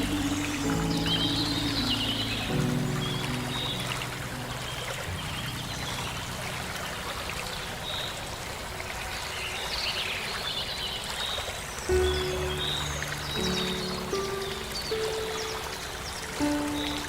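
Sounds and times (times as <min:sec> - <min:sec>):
soft sustained music notes: 0:00.0 - 0:09.7, 0:11.7 - 0:17.0
flowing stream water: 0:00.0 - 0:17.0.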